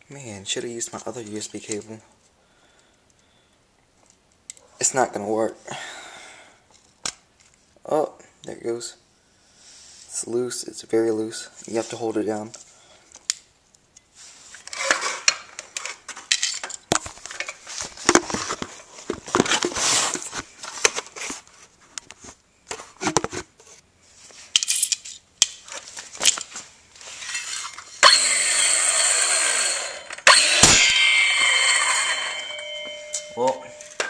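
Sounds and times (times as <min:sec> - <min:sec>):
small metal parts clinking: 0:15.8 - 0:16.9, 0:24.5 - 0:25.2
metallic scraping with ringing: 0:27.1 - 0:34.0.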